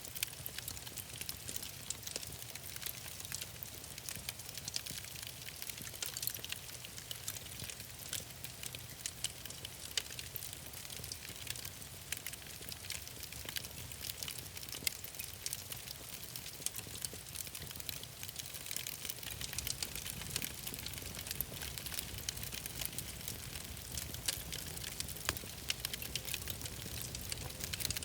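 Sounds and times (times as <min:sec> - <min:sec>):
wood fire crackling: 0:00.1 - 0:28.0.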